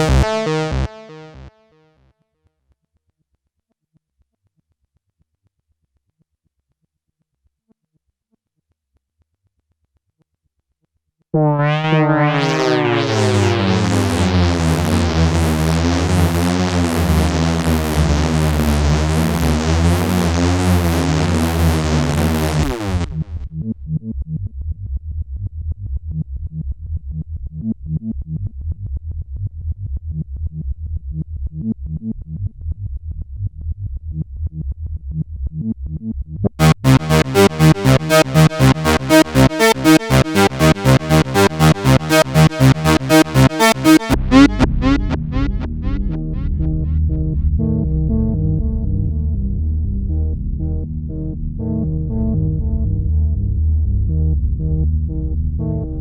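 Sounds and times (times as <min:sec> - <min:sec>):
fast repeated synth notes: 0:00.0 - 0:01.6, 0:11.4 - 0:23.1, 0:36.6 - 0:46.9
pulsing synth bass line: 0:00.0 - 0:01.6, 0:11.4 - 0:24.4, 0:35.6 - 0:56.0
synth tone with filter sweep: 0:00.0 - 0:01.6, 0:11.4 - 0:23.4, 0:36.5 - 0:50.8.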